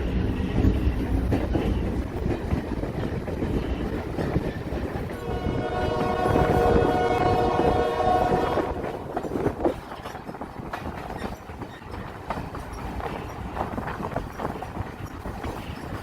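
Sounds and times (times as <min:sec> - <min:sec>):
wheels clicking over rail joints: 0:00.0 - 0:05.3, 0:08.6 - 0:16.0
train rumbling: 0:00.0 - 0:16.0
locomotive horn: 0:05.2 - 0:09.1.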